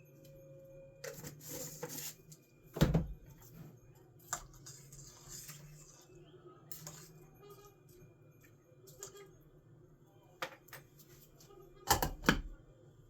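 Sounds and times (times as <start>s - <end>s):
loud thump: 2.8s - 3.2s.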